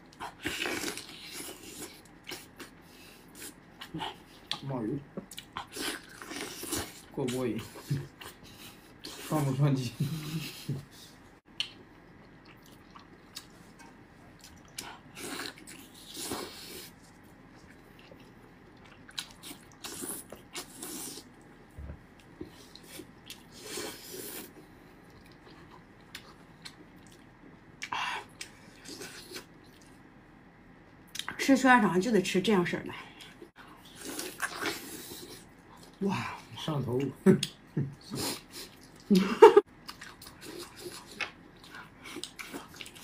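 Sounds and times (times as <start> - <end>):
wet chewing and smacking: 0.1 - 9.3, 11.5 - 21.5, 24.4 - 30.1, 37.4 - 43.0.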